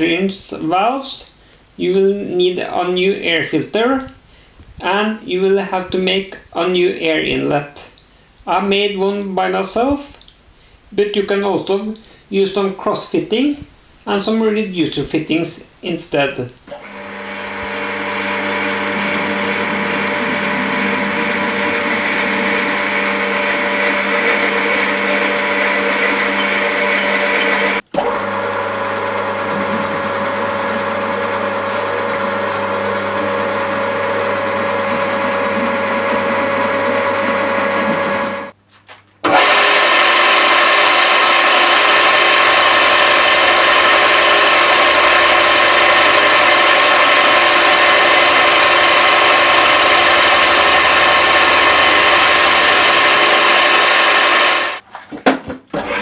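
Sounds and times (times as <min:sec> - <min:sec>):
electric machinery motor hum: 0:16.7 - 0:38.5, 0:39.3 - 0:54.8
brighter-pitched machine running: 0:16.8 - 0:38.5, 0:39.3 - 0:54.8.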